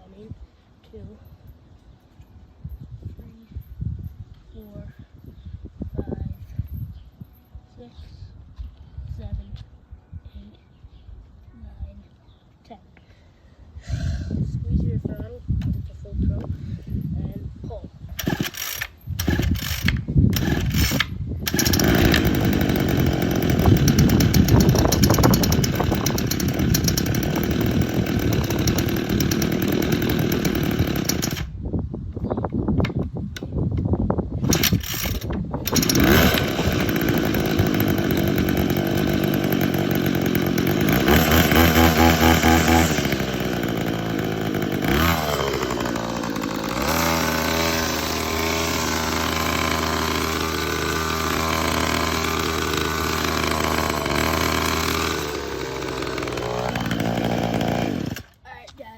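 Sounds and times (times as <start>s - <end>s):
small two-stroke engine running: 18.2s - 31.6s, 34.4s - 58.4s.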